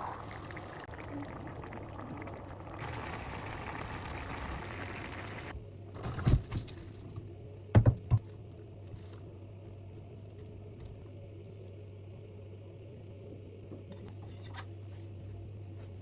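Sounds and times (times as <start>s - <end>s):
cooking hiss: 0.0s - 5.5s.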